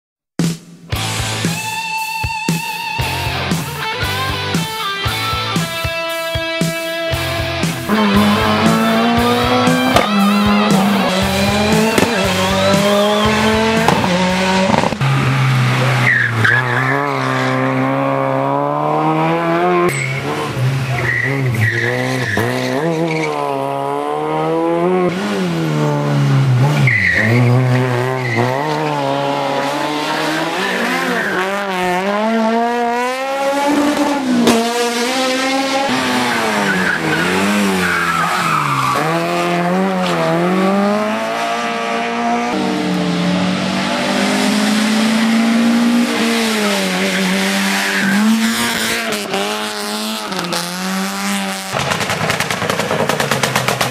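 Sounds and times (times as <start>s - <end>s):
rally car engine revving: 3.0s - 53.9s
tyres squealing: 35.9s - 39.3s.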